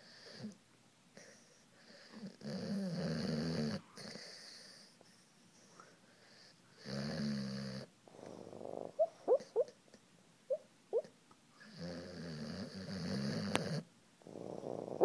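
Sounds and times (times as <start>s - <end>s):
dog snore-like breaths: 1.2s - 4.9s, 6.2s - 9.7s, 11.6s - 15.0s
dog squeaky whimpers: 9.0s - 9.7s.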